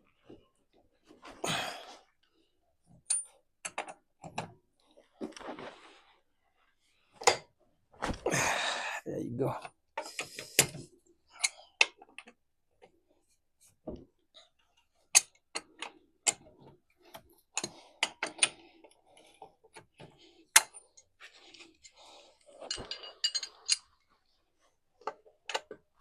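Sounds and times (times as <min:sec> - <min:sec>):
metal tools clinking on wheel: 0:22.5 - 0:23.9.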